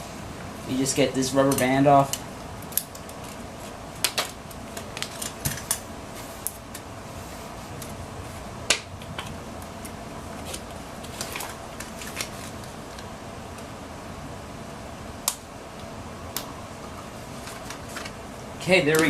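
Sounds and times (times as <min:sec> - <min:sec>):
plastic packaging handled: 0:10.4 - 0:13.0, 0:17.2 - 0:18.2.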